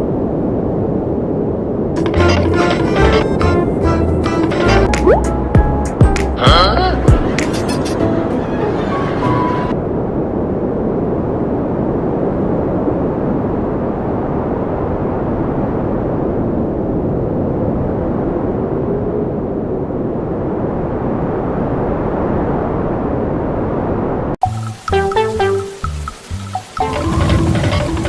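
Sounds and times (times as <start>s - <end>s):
deep rushing wind: 6.9s - 24.4s.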